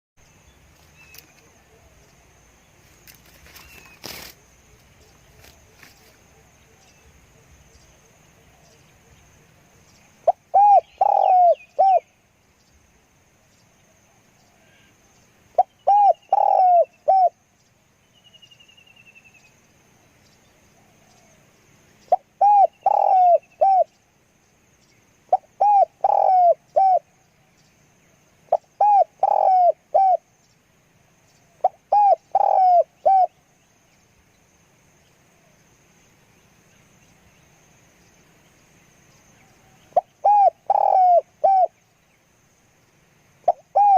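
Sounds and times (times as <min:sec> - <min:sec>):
dove cooing: 0:10.2 - 0:12.1, 0:15.6 - 0:17.4, 0:22.1 - 0:23.9, 0:25.3 - 0:27.1, 0:28.5 - 0:30.3, 0:31.5 - 0:33.4, 0:39.6 - 0:41.8, 0:43.4 - 0:43.9.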